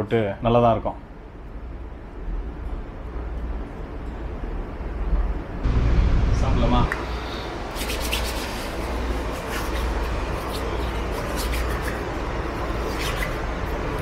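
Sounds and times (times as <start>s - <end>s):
train rumble and hiss inside coach: 4.7s - 14.0s.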